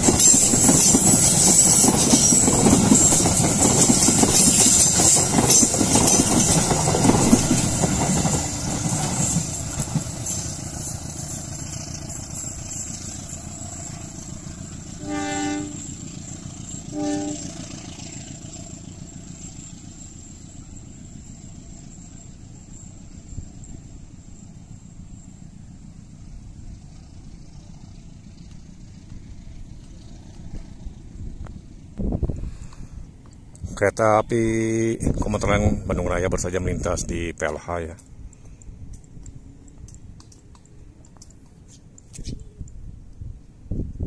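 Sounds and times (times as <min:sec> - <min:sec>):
train wheels clattering: 0:00.0 - 0:31.9
train rumbling past: 0:00.0 - 0:44.0
distant train horn blasts: 0:14.9 - 0:17.7.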